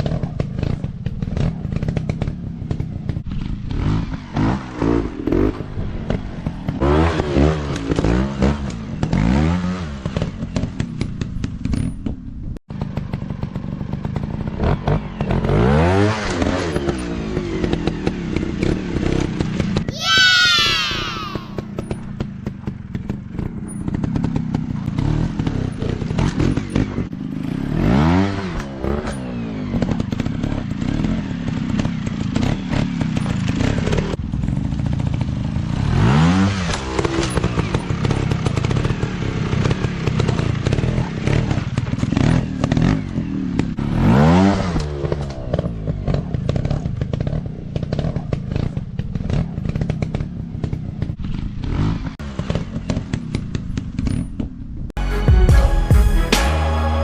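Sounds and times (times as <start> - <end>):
dirt bike engine revving: 2.7 - 11.0, 12.8 - 22.0, 23.0 - 35.0, 35.6 - 50.2.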